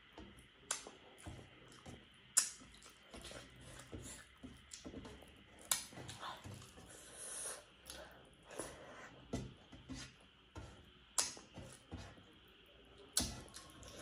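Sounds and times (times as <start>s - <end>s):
person chewing and smacking: 0.3s - 7.1s, 13.1s - 14.0s.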